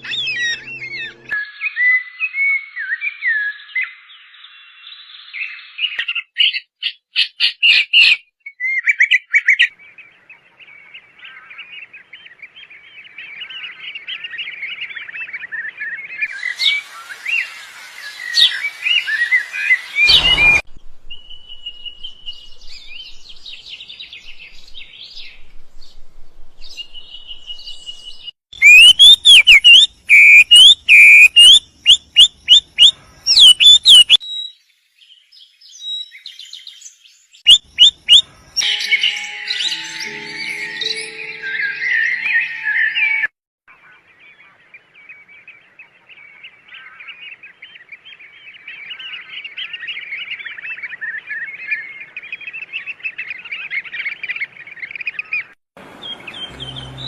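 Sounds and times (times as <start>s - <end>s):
songbird chirping and warbling: 0.0s - 57.0s
thump: 20.0s - 20.8s
sharp repeated chirps: 28.6s - 34.2s.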